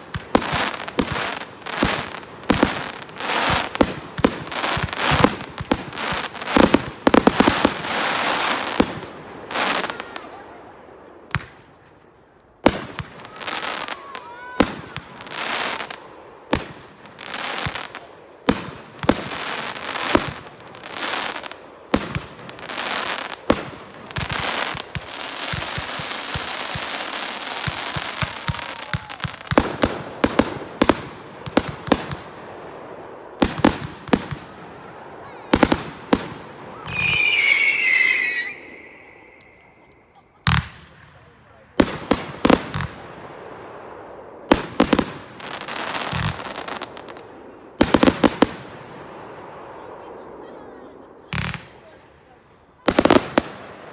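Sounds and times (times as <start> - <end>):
whistling firework: 0.0 - 10.7, 12.6 - 30.9, 33.4 - 41.4
fireworks banging and crackling: 0.0 - 53.9.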